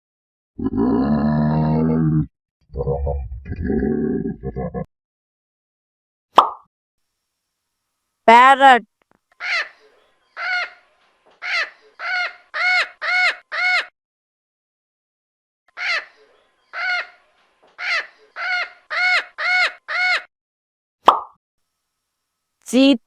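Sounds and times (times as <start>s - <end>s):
parrot squawking: 9.4s - 9.8s, 10.4s - 10.8s, 11.4s - 13.9s, 15.7s - 17.2s, 17.8s - 20.3s.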